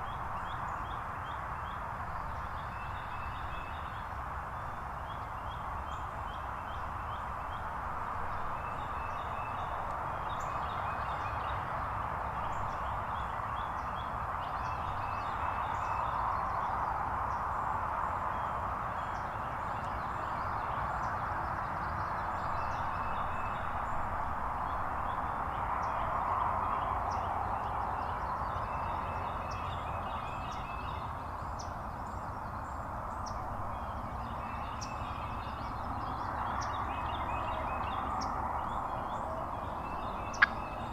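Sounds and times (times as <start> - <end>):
small birds chirping: 27.1 - 40.9.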